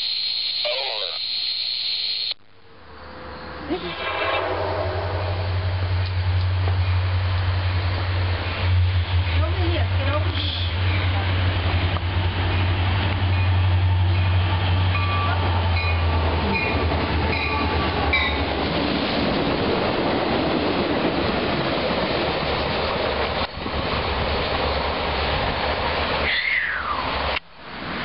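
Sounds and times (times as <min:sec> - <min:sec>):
locomotive engine drone: 0:02.2 - 0:28.0
freight cars rumbling and clattering: 0:02.9 - 0:26.3.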